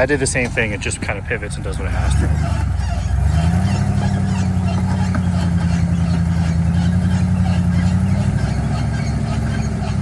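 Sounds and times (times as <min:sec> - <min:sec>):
engine running at low revs: 0:00.0 - 0:10.0.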